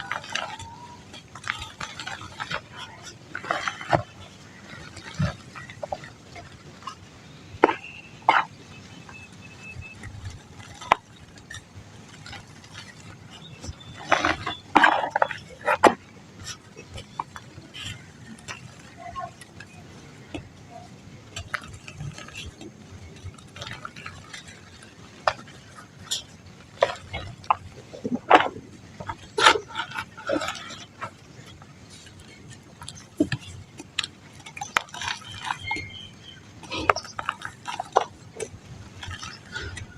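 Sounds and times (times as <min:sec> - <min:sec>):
dry mud crumbling and crunching: 0:00.0 - 0:39.9.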